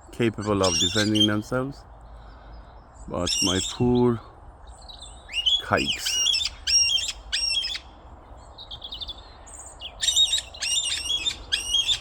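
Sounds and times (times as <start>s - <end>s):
parrots calling harshly: 0.4s - 1.4s, 3.2s - 3.8s, 5.0s - 8.0s, 9.8s - 12.0s.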